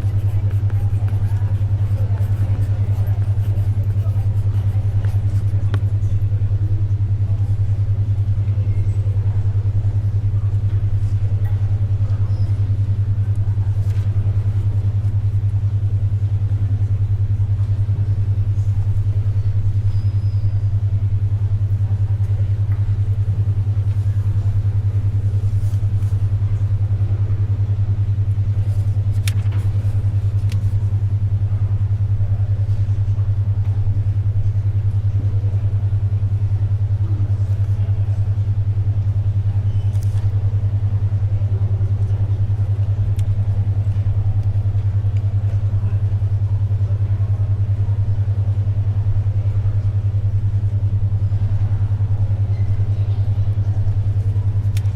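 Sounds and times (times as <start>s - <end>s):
paper and pencil rustles: 0.0s - 6.0s, 13.8s - 14.2s, 25.3s - 26.4s, 28.5s - 30.9s, 39.9s - 40.3s
library ambience: 0.0s - 54.9s.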